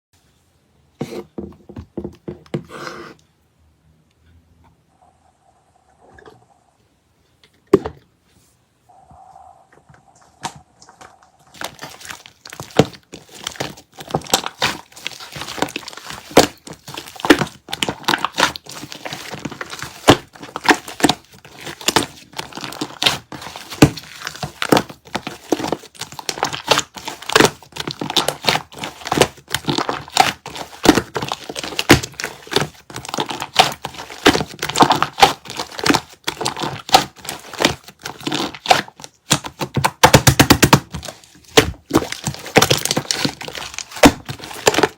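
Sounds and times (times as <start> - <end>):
slime crackling and popping: 10.4 - 44.9.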